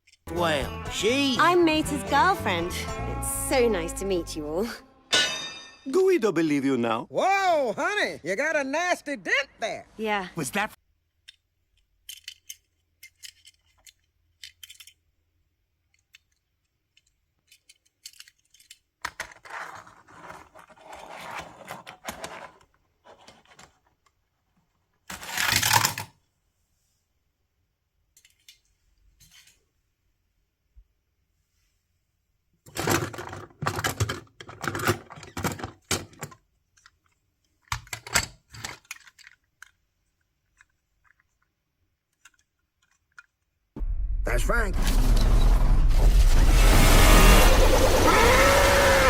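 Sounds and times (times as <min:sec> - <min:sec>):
toy cars clattering: 0:11.2 - 0:26.2, 0:28.1 - 0:29.6, 0:32.7 - 0:43.5.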